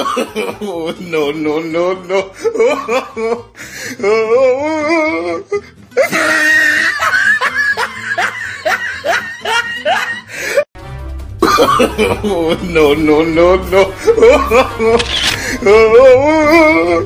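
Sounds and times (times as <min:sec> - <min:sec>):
music: 0:00.0 - 0:17.0
person laughing: 0:06.0 - 0:10.6, 0:11.4 - 0:12.7, 0:13.9 - 0:16.0.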